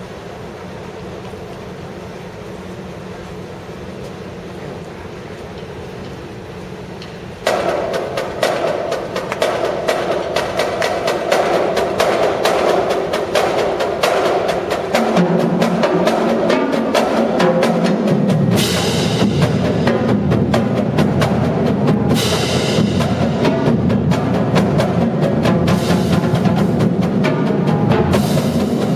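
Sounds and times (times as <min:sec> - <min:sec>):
marching drumline cadence: 0:00.0 - 0:28.9
low drums: 0:00.1 - 0:28.9
cymbal crashes: 0:07.5 - 0:28.9.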